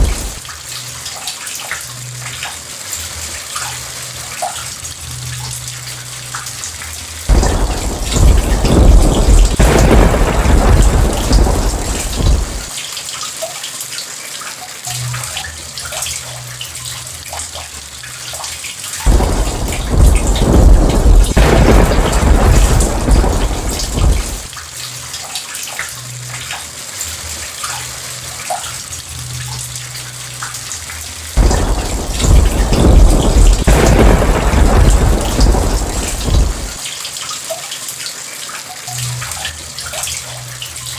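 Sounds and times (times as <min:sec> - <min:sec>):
thunder rumbling: 0:00.0 - 0:00.4, 0:07.3 - 0:12.7, 0:19.1 - 0:24.5, 0:31.4 - 0:36.8
heavy rain: 0:00.0 - 0:16.6, 0:18.0 - 0:40.9.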